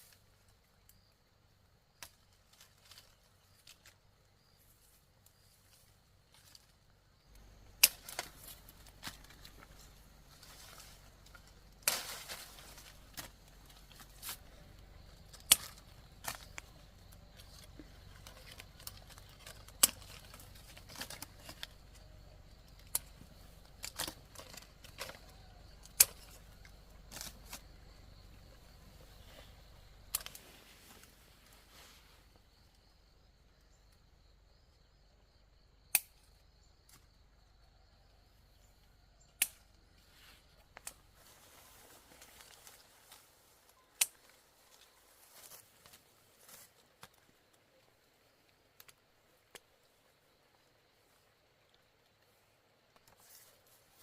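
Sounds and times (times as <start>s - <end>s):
sharp irregular clicks and knocks: 15.2s - 16.8s, 17.4s - 21.8s, 22.7s - 27.6s.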